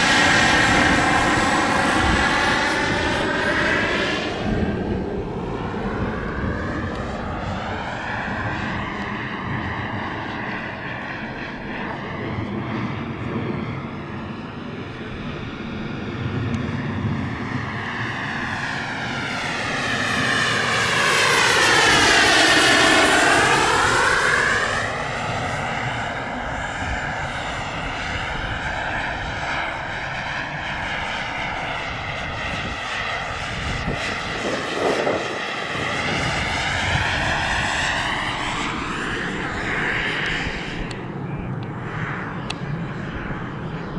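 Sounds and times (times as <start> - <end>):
model aircraft flying: 0.0 - 43.9.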